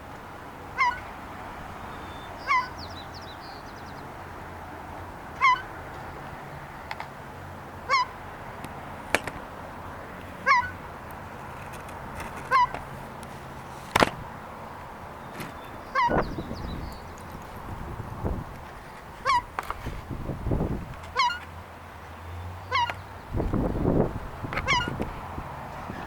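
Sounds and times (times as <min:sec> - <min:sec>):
gull calling: 0:00.8 - 0:01.1, 0:01.9 - 0:02.9, 0:05.4 - 0:05.7, 0:07.9 - 0:08.1, 0:10.4 - 0:10.8, 0:12.5 - 0:12.8, 0:15.5 - 0:16.9, 0:19.2 - 0:19.6, 0:22.7 - 0:23.0, 0:24.5 - 0:25.0.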